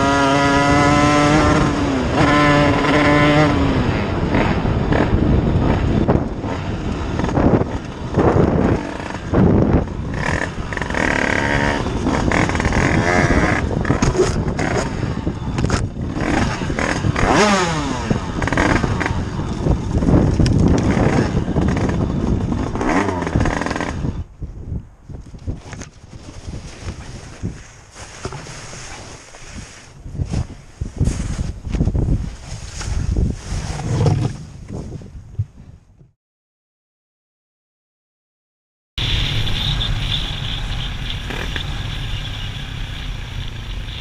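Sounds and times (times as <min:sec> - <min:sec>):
motorcycle engine revving: 0:00.0 - 0:24.3, 0:39.0 - 0:44.0
road and wind noise: 0:00.0 - 0:36.2, 0:39.0 - 0:44.0.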